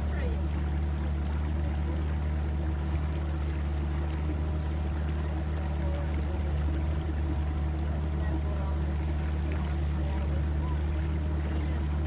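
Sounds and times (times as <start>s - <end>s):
boat motor humming: 0.0s - 12.0s
water rushing past hull: 0.0s - 12.0s.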